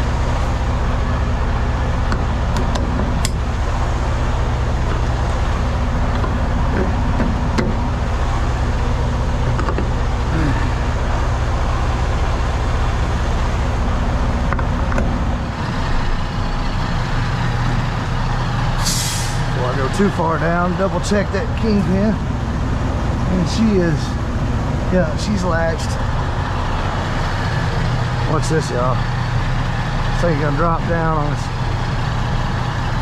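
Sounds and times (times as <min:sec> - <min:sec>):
diesel truck engine running: 0:00.0 - 0:33.0.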